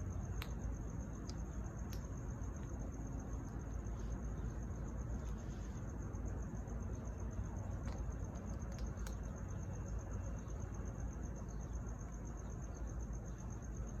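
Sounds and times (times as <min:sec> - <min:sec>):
high-pitched insect trill: 0:00.0 - 0:14.0
low steady rumble: 0:00.0 - 0:14.0
faint clicks: 0:00.2 - 0:02.8.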